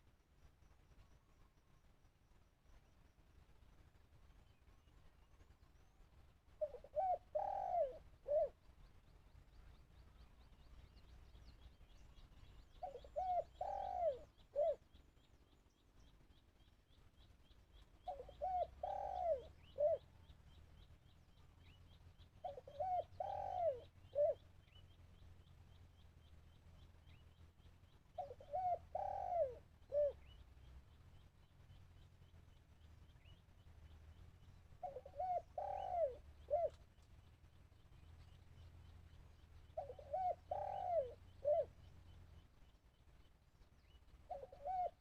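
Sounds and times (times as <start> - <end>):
dove cooing: 6.6 - 8.6, 12.8 - 14.8, 18.0 - 20.1, 22.4 - 24.4, 28.2 - 30.3, 34.8 - 36.8, 39.7 - 41.8, 44.3 - 45.0.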